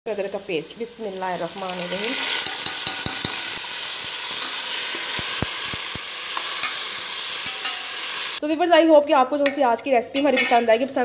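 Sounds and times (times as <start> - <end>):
vegetables sizzling in a pot: 0.1 - 8.4.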